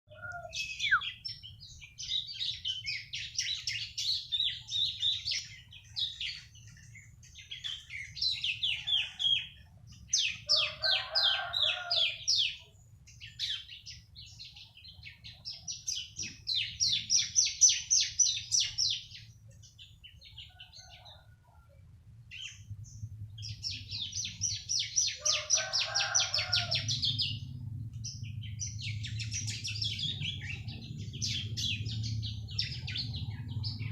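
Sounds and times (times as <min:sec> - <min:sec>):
bird singing high chirps: 0:00.1 - 0:21.4, 0:22.3 - 0:33.9
faint low hum: 0:26.3 - 0:33.9.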